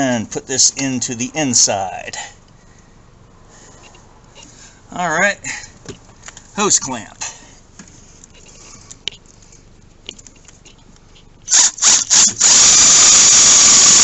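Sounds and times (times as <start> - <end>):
power drill running: 11.5 - 14.0.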